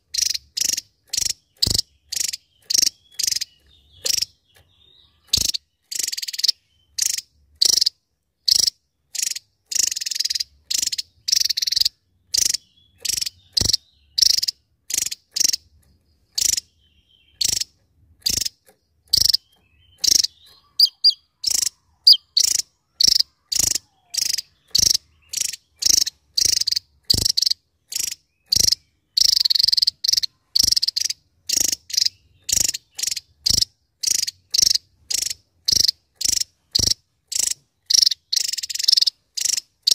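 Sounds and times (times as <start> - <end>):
bird singing high sharp bursts: 0.0 - 15.7, 16.3 - 39.9.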